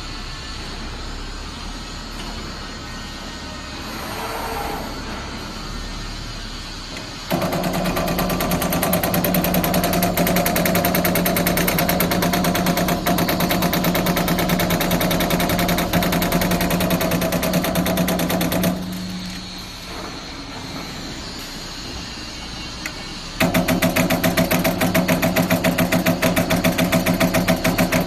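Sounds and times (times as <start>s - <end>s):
machine hum: 0.1s - 28.0s
punch press punching sheet metal: 7.3s - 19.4s, 23.4s - 28.0s.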